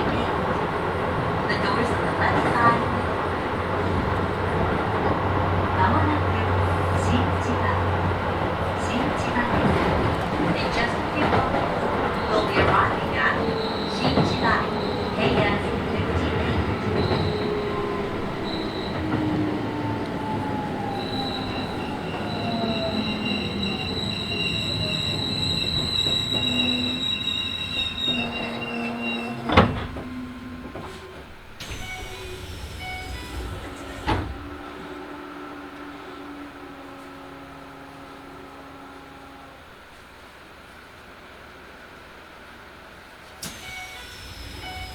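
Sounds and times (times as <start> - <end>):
train motor whine: 0.0 - 40.0, 43.4 - 44.9
high brake squeal: 12.0 - 37.3, 43.4 - 44.9.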